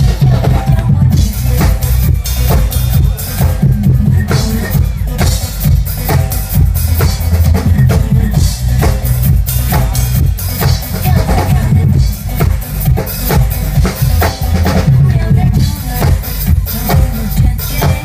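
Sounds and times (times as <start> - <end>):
drum kit playing: 0.0 - 18.0
pop backing track: 0.0 - 18.0.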